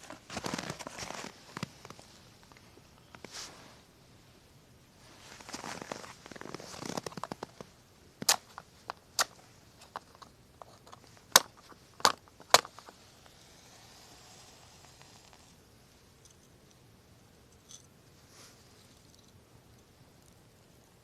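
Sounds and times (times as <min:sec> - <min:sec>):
burning wood popping: 0:05.4 - 0:13.1.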